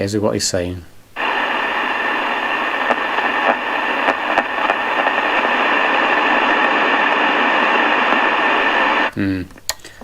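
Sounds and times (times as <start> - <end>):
radio static hiss: 1.1 - 9.4
radio crackles: 1.2 - 9.2.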